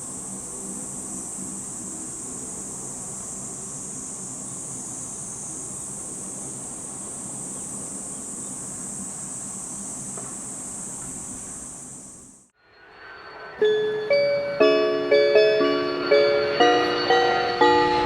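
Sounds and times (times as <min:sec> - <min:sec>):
distant turboprop engines droning: 0:00.0 - 0:18.0.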